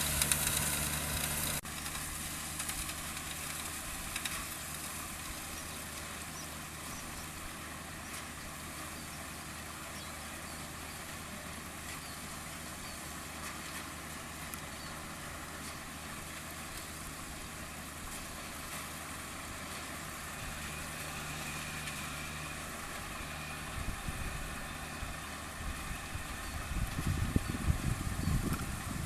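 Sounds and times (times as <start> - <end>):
diesel engine idling: 0.0 - 13.4.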